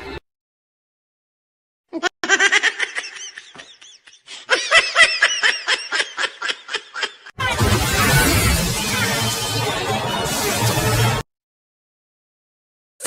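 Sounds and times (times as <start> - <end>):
person laughing in bursts: 2.0 - 7.3.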